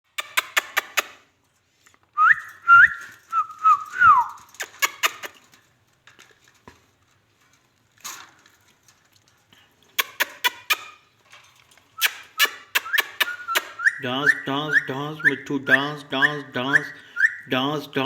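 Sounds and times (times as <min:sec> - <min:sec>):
parrot whistling and chirping: 0:02.2 - 0:04.4, 0:12.0 - 0:17.6.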